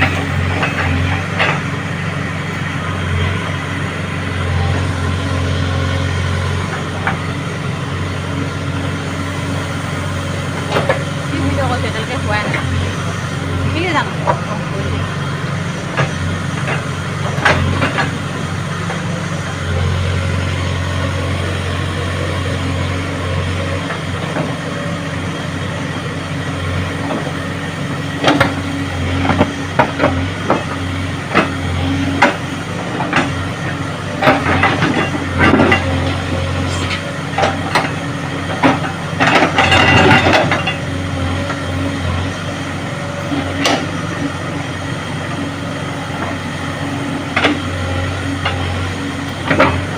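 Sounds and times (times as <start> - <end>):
excavator diesel engine running: 0.0 - 49.9
knocks and clanks: 15.9 - 19.0, 34.1 - 42.4, 47.3 - 49.9.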